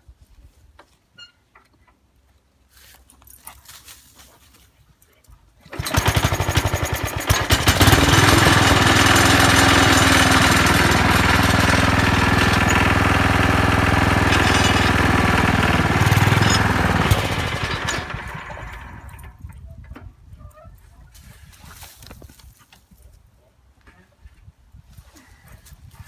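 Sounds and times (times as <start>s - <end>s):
garden tractor engine running: 5.6s - 19.5s.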